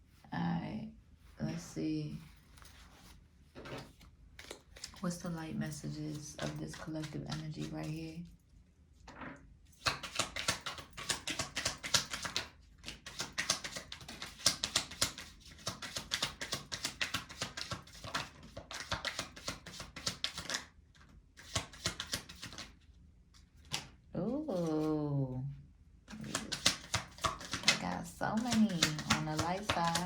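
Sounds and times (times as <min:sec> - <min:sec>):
cards being shuffled: 0:02.6 - 0:05.0, 0:05.7 - 0:08.0, 0:09.8 - 0:22.8, 0:26.1 - 0:30.0.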